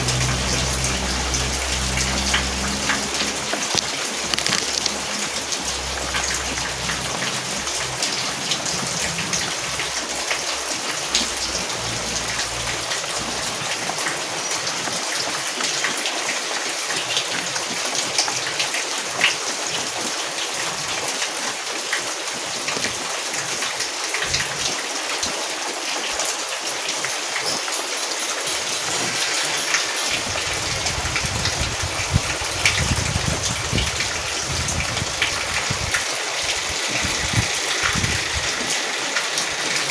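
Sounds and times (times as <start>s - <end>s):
low rumble: 0.0s - 9.9s
rain pattering: 0.0s - 39.9s.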